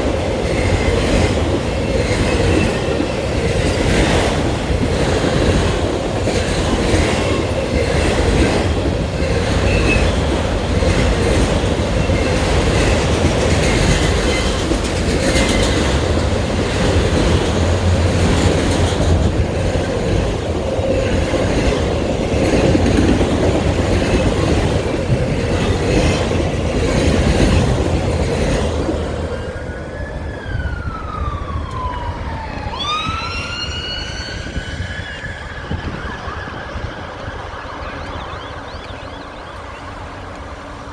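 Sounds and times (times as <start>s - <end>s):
train wheels rumbling on rails: 0.0s - 40.9s
wailing siren: 29.3s - 40.9s.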